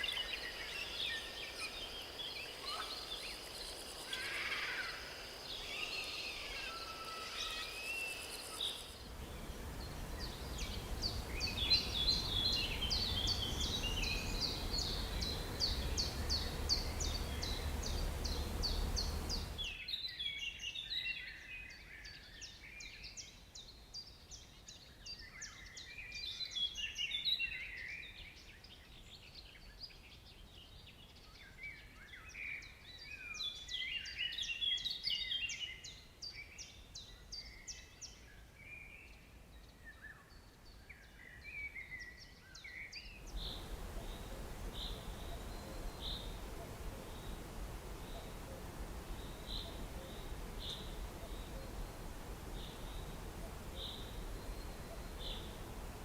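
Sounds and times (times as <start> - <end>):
bird calls and twitters: 0.0 - 21.4, 38.8 - 56.0
low rumble: 9.1 - 19.6
rapid high bird chirps: 9.3 - 19.6.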